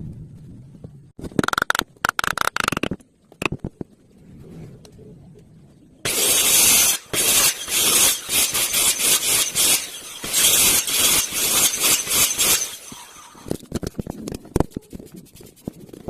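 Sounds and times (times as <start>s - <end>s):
wood rasping strokes: 6.1s - 13.6s.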